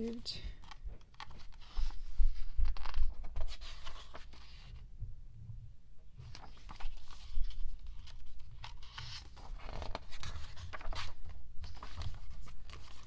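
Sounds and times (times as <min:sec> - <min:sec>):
packaging rustling and crinkling: 0:06.2 - 0:13.0.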